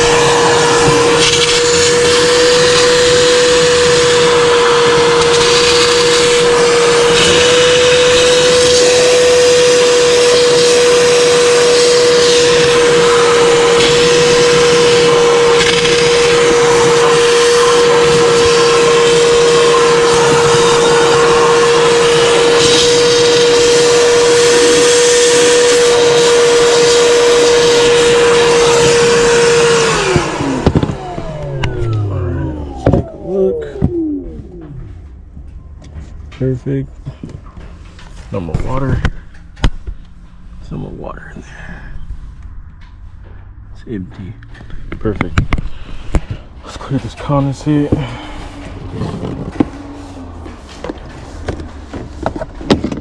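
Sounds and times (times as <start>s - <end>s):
motor winding down: 0.0s - 34.9s
vacuum sucking water: 0.0s - 35.0s, 44.5s - 53.0s
shop vacuum motor whine: 0.0s - 35.2s, 43.7s - 53.0s.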